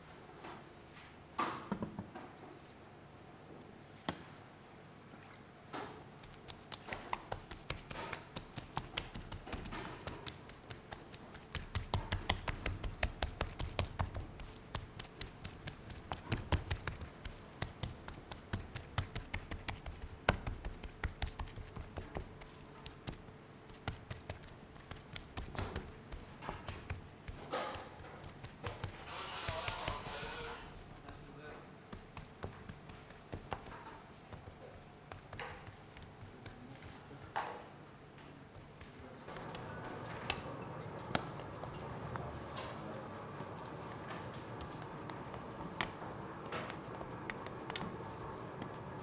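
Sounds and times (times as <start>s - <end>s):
tapping and knocking of food preparation: 1.4s - 2.2s, 6.2s - 37.6s, 38.3s - 42.8s, 43.5s - 49.0s.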